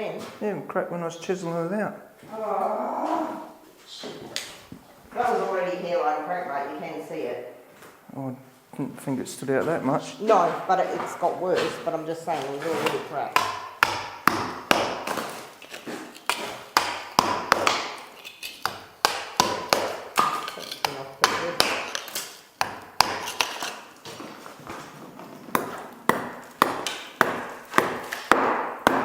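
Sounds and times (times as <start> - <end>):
hammer striking steel chisel: 12.8 - 15.3, 16.2 - 23.8, 25.6 - 29.0.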